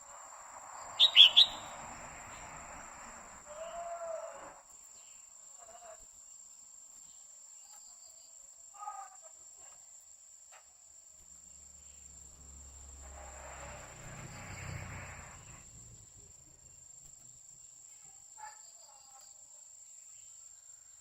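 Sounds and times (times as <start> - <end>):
high-pitched insect whine: 0.0 - 9.8, 10.5 - 21.0
bird short calls: 1.0 - 1.7.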